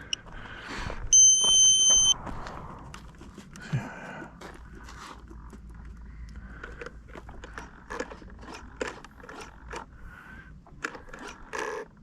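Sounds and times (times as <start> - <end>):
steady low rumble: 2.0 - 7.9.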